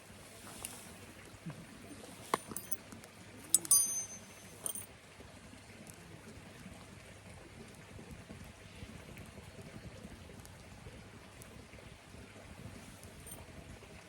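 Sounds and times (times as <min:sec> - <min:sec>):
small metal objects clinking: 0:02.3 - 0:02.8, 0:03.5 - 0:04.9.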